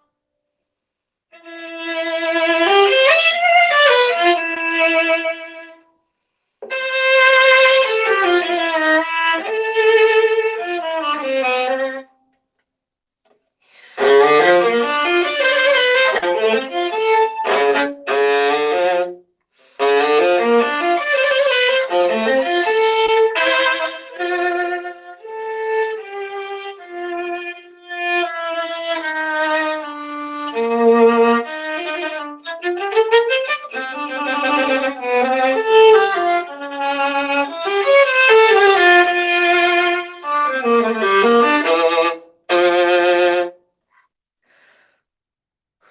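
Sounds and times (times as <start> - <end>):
bowed viola melody: 1.3 - 5.9, 6.6 - 12.1, 13.8 - 43.6.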